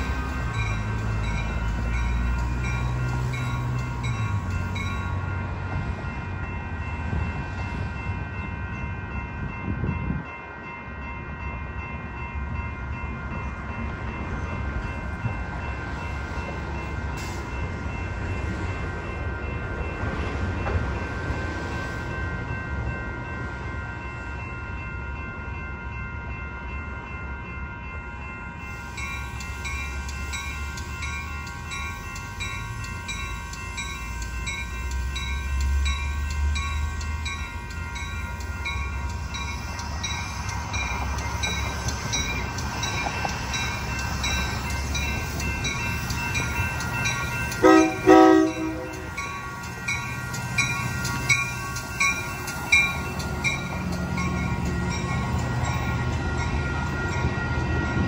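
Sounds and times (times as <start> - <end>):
train rumble: 0.0 - 58.0
train horn blasts: 47.6 - 49.2.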